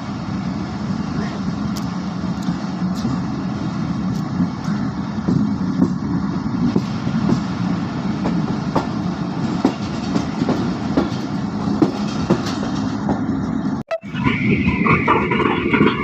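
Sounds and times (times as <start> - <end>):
train wheels rumbling on rails: 0.0 - 16.0
wheels clacking over rail joints: 4.0 - 13.8.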